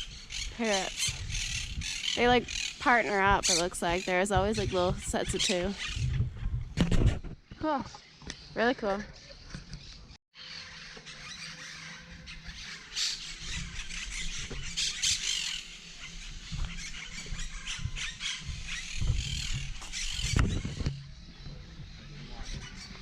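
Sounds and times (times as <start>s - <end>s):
parrots squawking: 0.0s - 2.8s, 10.4s - 20.9s, 22.4s - 23.0s
low thumps on microphone: 1.0s - 7.6s, 16.4s - 22.8s.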